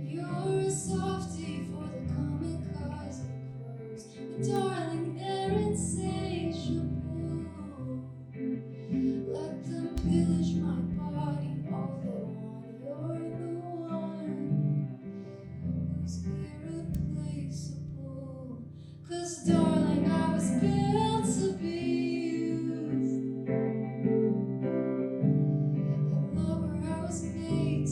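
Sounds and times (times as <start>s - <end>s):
person singing: 0.0s - 27.9s
plucked guitar: 0.0s - 27.9s.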